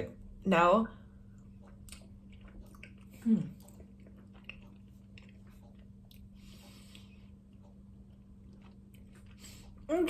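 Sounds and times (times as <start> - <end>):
steady low hum: 0.0 - 10.0
person chewing: 1.3 - 9.9
breath: 6.4 - 7.2.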